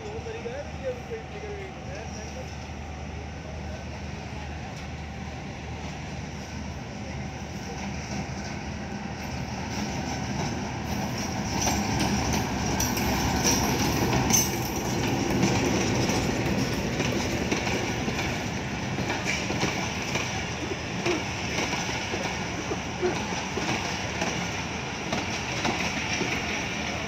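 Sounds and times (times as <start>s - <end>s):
diesel locomotive engine running: 0.0s - 27.0s
wheels clicking over rail joints: 9.2s - 27.0s.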